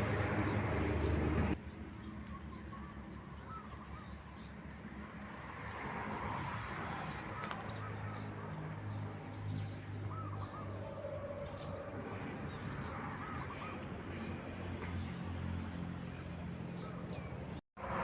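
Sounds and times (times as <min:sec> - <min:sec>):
birds wavering calls: 0:00.4 - 0:04.7, 0:06.6 - 0:15.2.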